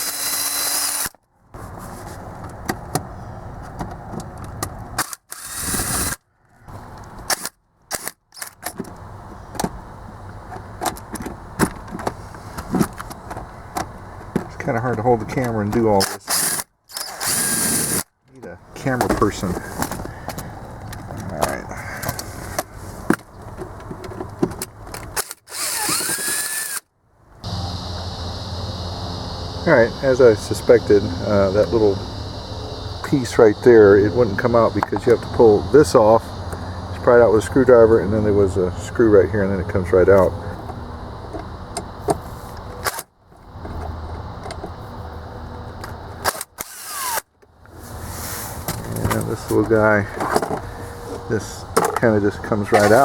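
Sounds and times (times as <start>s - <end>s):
power tool whirring: 0.0s - 1.1s, 16.3s - 18.0s, 25.2s - 26.8s, 27.4s - 37.1s, 46.3s - 47.2s
steady low hum: 27.4s - 41.8s.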